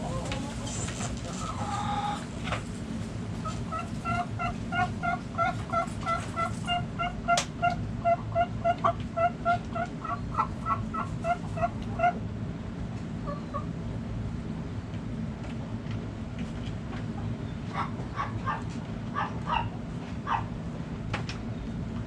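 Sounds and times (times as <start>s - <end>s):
chicken clucking: 0.0s - 2.6s, 3.4s - 12.2s
low background rumble: 0.0s - 22.0s.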